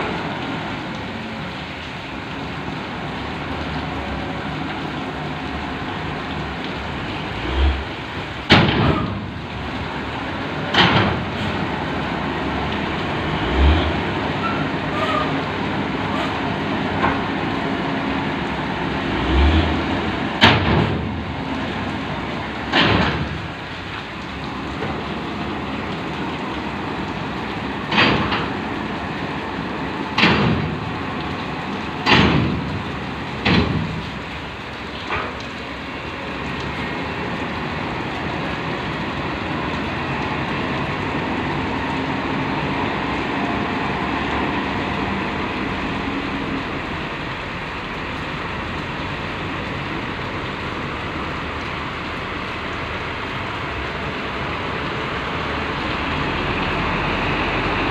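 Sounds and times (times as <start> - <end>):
heavy rain: 0.0 - 57.9.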